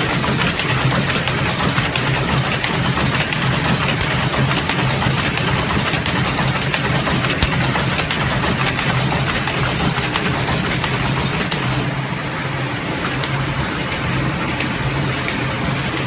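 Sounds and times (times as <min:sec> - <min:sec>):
sewing machine humming: 0:00.0 - 0:16.0.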